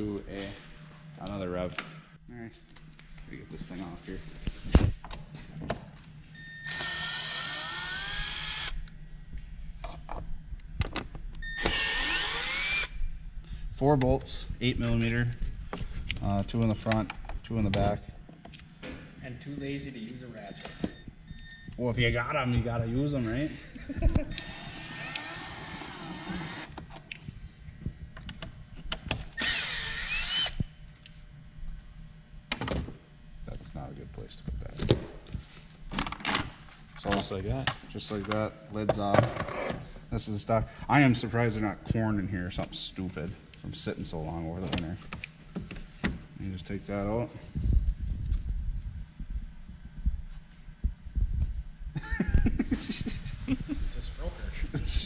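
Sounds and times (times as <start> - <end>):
cordless drill whining: 6.6 - 8.9, 11.4 - 13.0, 24.3 - 26.8, 29.4 - 30.6.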